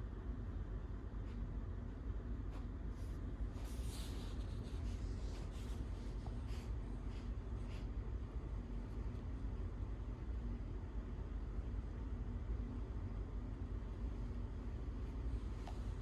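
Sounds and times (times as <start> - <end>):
steady low hum: 0.0 - 16.0
scratchy rustles on bedding: 2.9 - 8.0.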